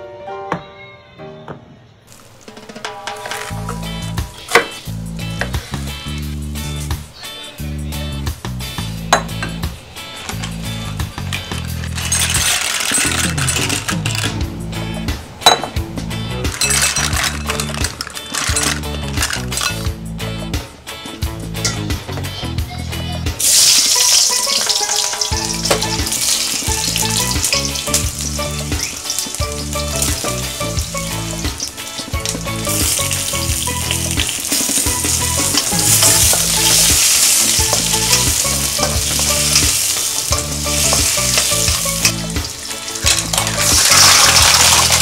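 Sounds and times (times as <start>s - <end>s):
vegetables sizzling in hot oil: 23.4s - 45.0s.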